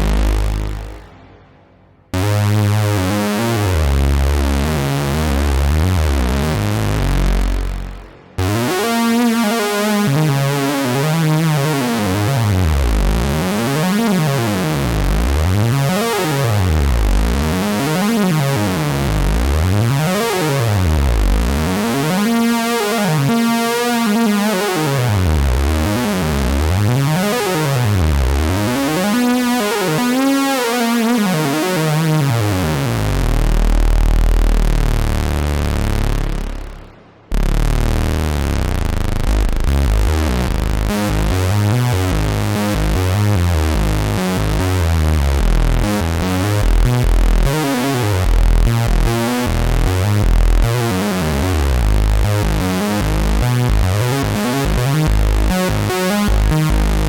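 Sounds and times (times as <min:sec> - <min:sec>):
deep synth tone swooping in pitch: 0:00.0 - 0:10.2, 0:32.6 - 0:47.5
synthesizer bass notes: 0:00.0 - 0:57.0.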